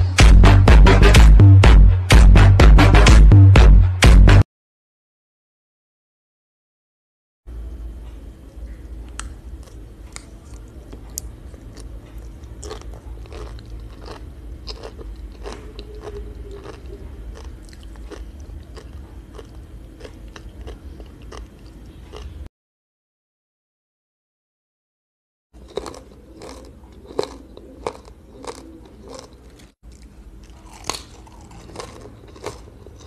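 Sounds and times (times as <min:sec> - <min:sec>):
low steady hum: 0:07.5 - 0:22.5, 0:25.6 - 0:33.0
chewing crisp seaweed: 0:08.5 - 0:22.5, 0:25.6 - 0:33.0.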